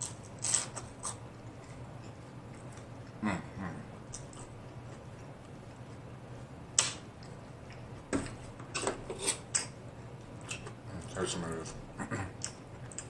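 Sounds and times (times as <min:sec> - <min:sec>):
person chewing: 0:00.0 - 0:11.2, 0:12.3 - 0:13.0
falling mm hums: 0:01.2 - 0:08.5.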